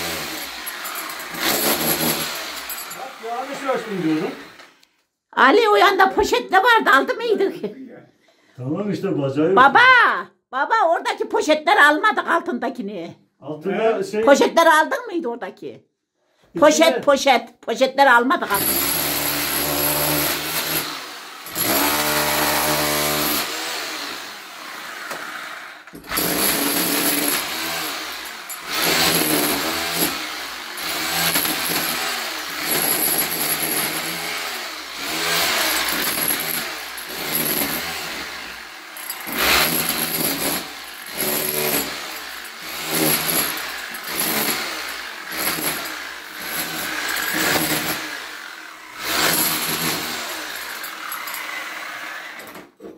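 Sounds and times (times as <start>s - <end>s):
electric power tool motor: 0.0s - 4.8s, 18.5s - 52.6s.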